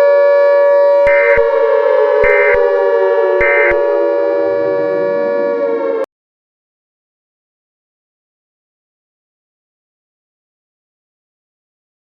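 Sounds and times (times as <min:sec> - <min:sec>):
siren tone sliding down: 0:00.0 - 0:06.1
screeching data bursts: 0:01.1 - 0:05.6.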